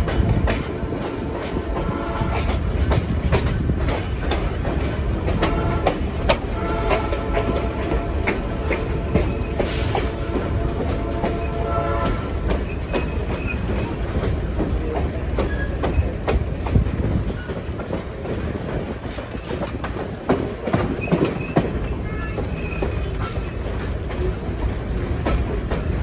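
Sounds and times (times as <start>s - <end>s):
train rumbling: 0.0s - 26.0s
wheels clicking over rails: 0.0s - 26.0s.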